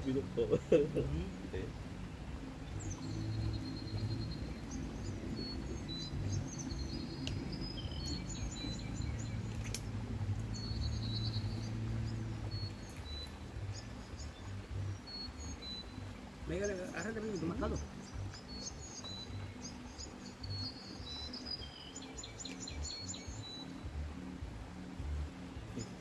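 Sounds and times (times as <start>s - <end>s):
low outdoor rumble: 0.0s - 26.0s
small birds chirping: 0.0s - 26.0s
sharp clicks: 9.5s - 9.9s.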